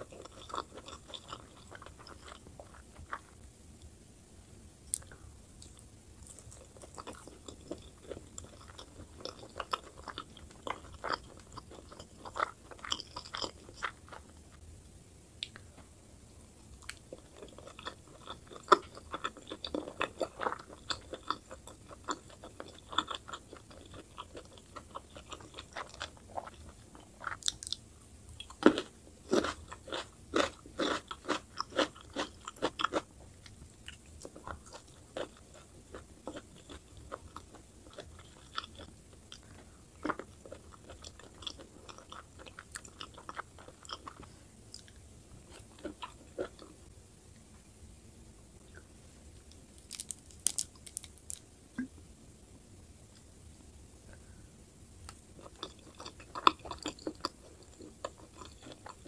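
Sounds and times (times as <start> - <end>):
close-miked chewing: 0.0 - 3.4, 4.9 - 14.6, 16.6 - 46.8, 55.1 - 59.0.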